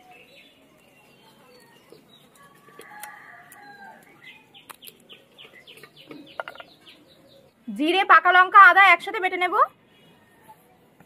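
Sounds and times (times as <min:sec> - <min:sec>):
crab shells clicking apart: 0:04.6 - 0:05.0.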